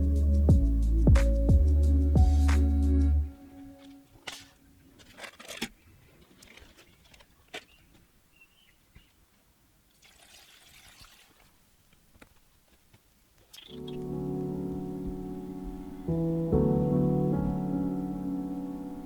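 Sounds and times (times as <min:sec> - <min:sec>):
water trickling: 0:09.9 - 0:11.6.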